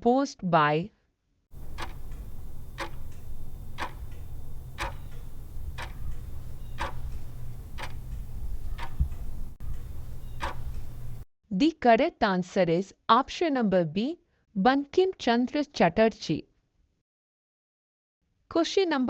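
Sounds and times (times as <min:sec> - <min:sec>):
clock ticking: 0:01.6 - 0:11.2
low steady hum: 0:01.6 - 0:11.2.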